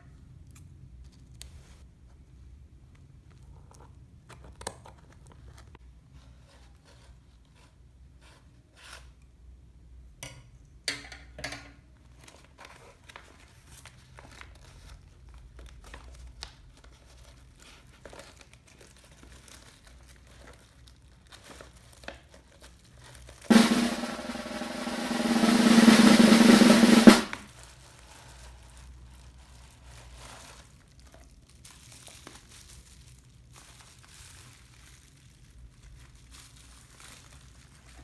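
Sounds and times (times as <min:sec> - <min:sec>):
book and packaging rustling: 0:12.0 - 0:23.5, 0:27.4 - 0:38.0
snare drum roll: 0:23.5 - 0:27.5.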